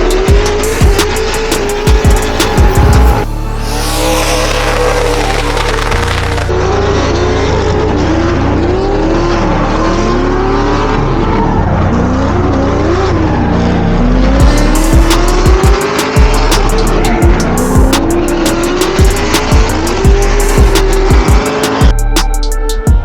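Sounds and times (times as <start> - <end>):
steady drum beat: 0.0 - 3.4, 14.4 - 23.0
music with heavy bass: 0.0 - 6.7, 14.2 - 23.0
car engines revving: 0.0 - 21.9
tyres squealing: 0.6 - 6.5.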